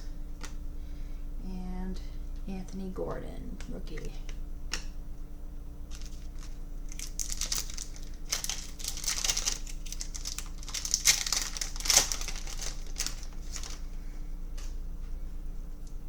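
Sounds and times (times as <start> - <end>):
plastic wrapper crackling: 5.9 - 13.8.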